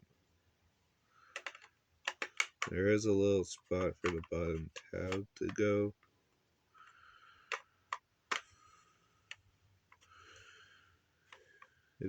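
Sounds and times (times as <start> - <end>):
plastic toy pieces clicking: 1.3 - 2.7, 3.7 - 5.9, 7.5 - 8.5.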